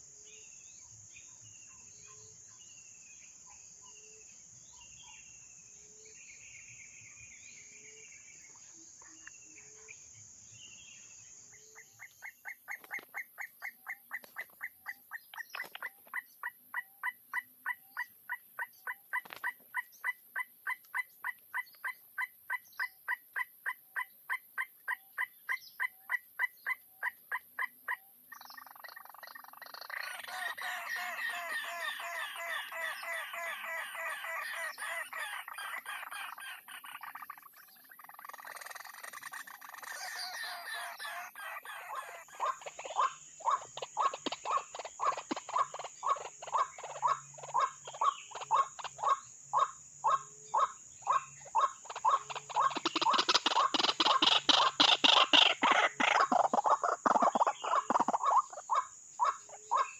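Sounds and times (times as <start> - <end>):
waterhens calling: 29.5 - 37.3, 38.0 - 59.9.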